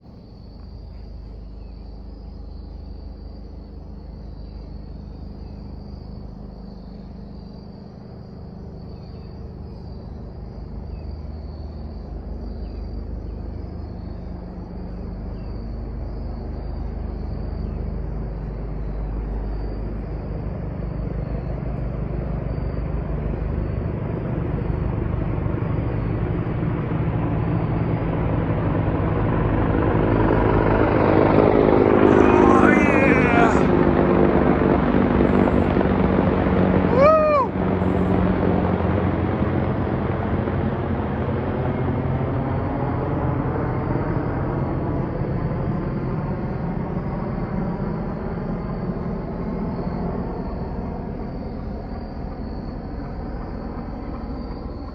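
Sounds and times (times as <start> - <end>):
helicopter rotor rumble: 0.0 - 54.9
insects chirping: 0.0 - 54.9.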